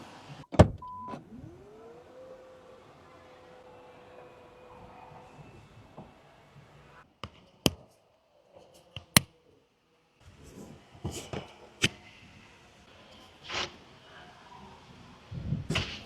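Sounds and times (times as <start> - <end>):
sharp clicks and knocks: 8.9 - 9.3.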